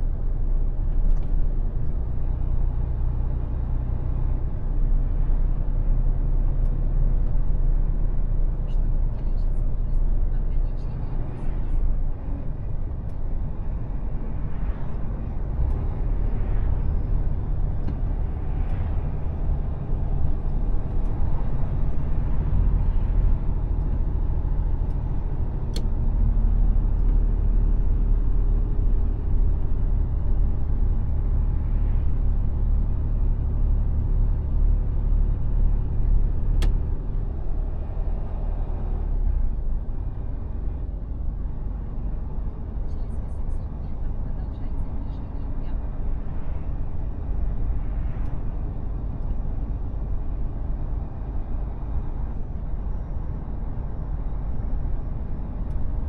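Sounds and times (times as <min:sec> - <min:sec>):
truck engine rumble: 0:00.0 - 0:56.0.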